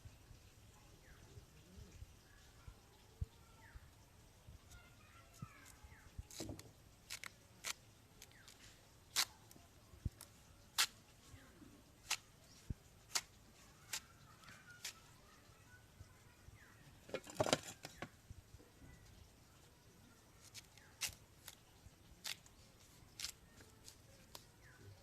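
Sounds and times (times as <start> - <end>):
knife cutting yam: 5.6 - 11.0, 12.0 - 15.2, 20.4 - 21.6, 22.2 - 24.8.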